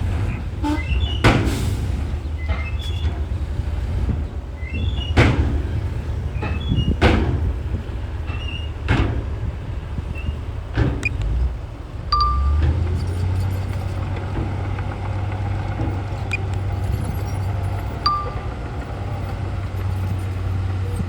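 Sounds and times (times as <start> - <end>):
bulldozer diesel engine droning: 0.0 - 21.0
sharp metallic clanks: 12.2 - 13.6, 18.0 - 18.6
short high squeaks: 12.2 - 14.1, 16.2 - 21.0.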